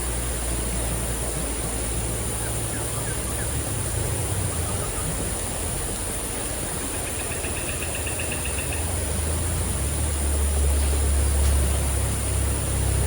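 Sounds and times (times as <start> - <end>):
rushing water: 0.0 - 13.0
high-pitched insect drone: 0.1 - 13.0
rapid chirping trill: 2.0 - 10.7
heavy rain: 8.4 - 13.0.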